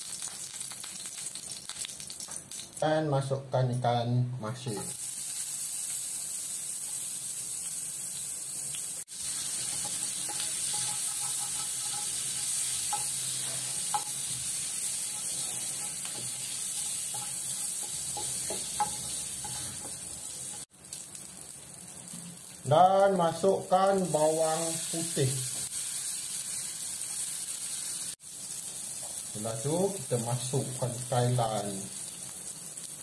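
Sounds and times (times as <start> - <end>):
fish sizzling in hot oil: 0.0 - 2.8, 4.8 - 33.0.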